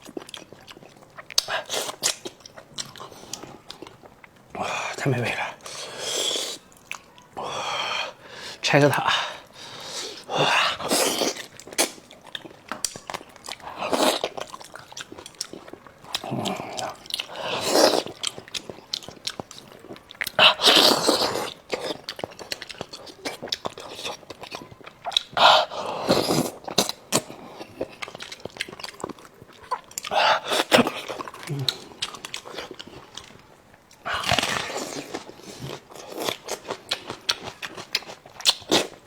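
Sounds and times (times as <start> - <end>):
person chewing food: 0.0 - 8.5, 9.3 - 39.0.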